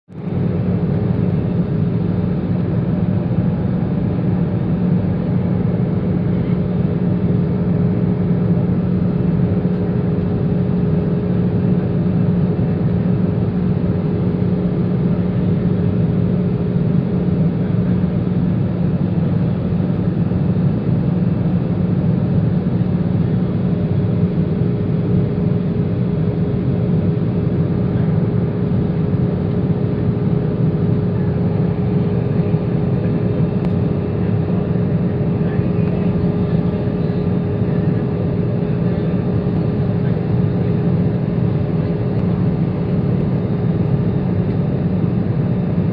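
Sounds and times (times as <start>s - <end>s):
jet engine noise: 0.1s - 45.9s.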